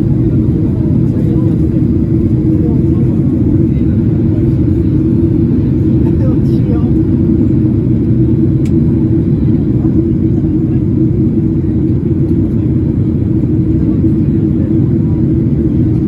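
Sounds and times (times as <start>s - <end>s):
airliner engine rumble in cabin: 0.0s - 16.0s.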